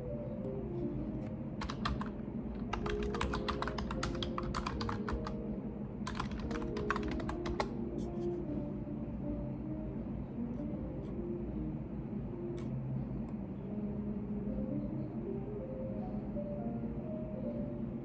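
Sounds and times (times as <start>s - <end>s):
computer keyboard typing: 1.6s - 5.4s, 6.0s - 7.8s.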